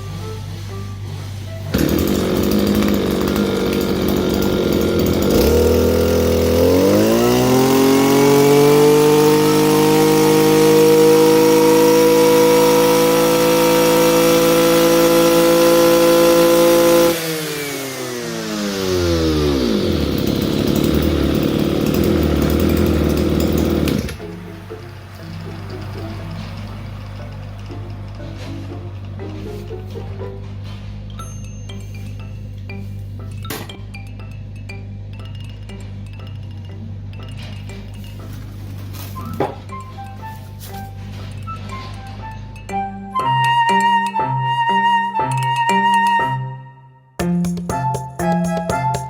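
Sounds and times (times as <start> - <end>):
brush cutter engine revving: 1.6 - 29.9.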